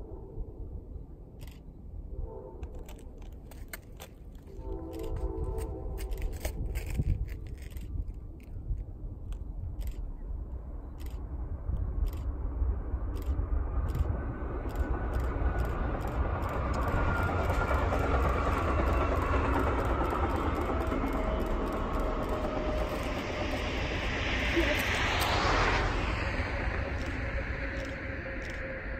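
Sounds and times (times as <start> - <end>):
train approaching: 0.9 - 28.9
sharp clicks: 14.7 - 24.2, 26.9 - 28.7.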